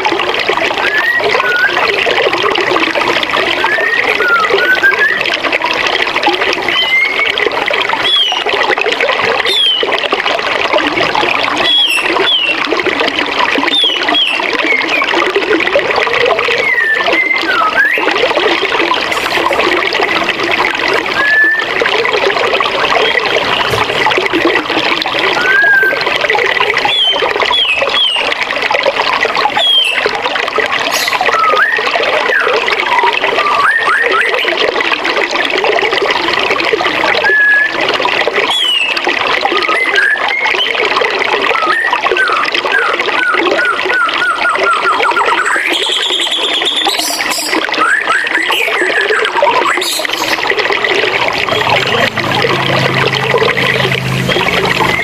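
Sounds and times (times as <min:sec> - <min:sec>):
birds chirping: 0:26.8 - 0:28.3, 0:30.9 - 0:31.8, 0:45.2 - 0:47.6, 0:48.4 - 0:55.0.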